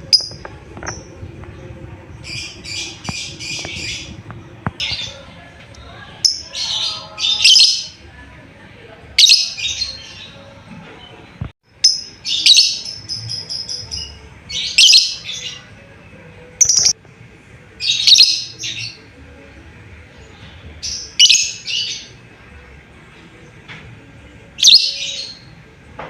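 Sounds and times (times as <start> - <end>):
lovebird shrill chirping calls: 16.6 - 17.0.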